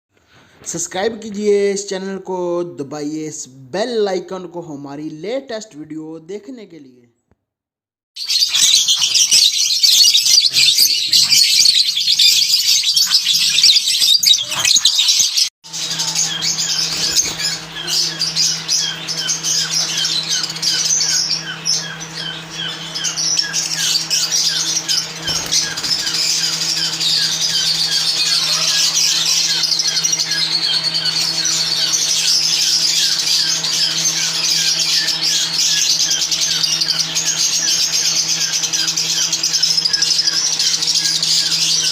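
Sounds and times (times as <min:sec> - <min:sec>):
lovebirds chattering and squawking: 0:08.2 - 0:41.9
steady low hum: 0:15.7 - 0:41.9.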